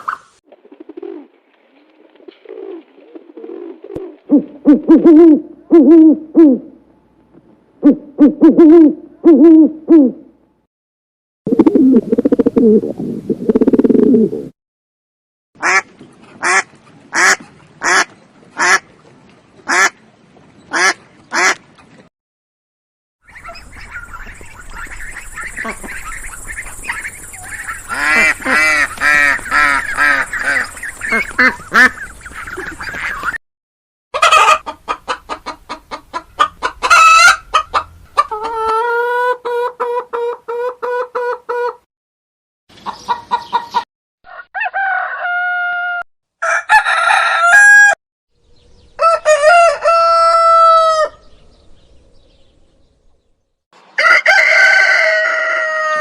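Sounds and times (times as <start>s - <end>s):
chickens clucking: 23.3s - 33.4s, 34.2s - 41.8s, 42.7s - 44.4s
rooster crowing: 44.3s - 48.0s, 48.9s - 51.3s, 54.0s - 56.0s.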